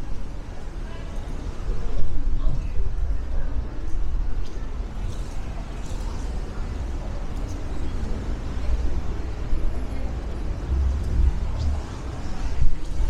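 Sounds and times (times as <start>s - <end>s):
distant traffic: 4.8s - 13.0s
wind rumble: 8.7s - 13.0s.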